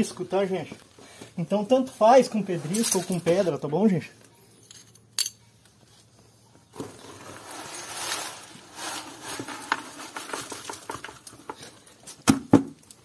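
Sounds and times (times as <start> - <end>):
trowel scraping gravel concrete: 6.8 - 11.3.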